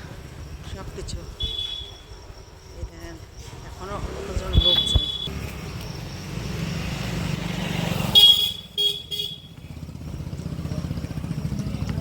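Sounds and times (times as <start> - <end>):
vehicle engine rumbling: 0.0 - 12.0
vehicle horn honking: 1.4 - 2.1, 4.6 - 5.3, 8.1 - 9.6.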